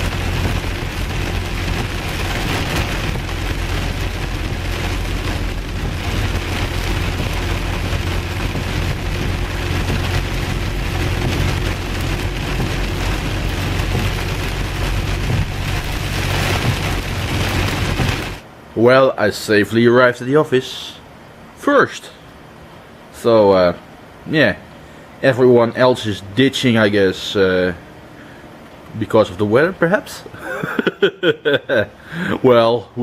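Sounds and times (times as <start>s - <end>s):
heavy rain drumming on car roof: 0.0s - 18.5s
car engine hum: 0.0s - 18.7s
road noise: 0.0s - 33.0s.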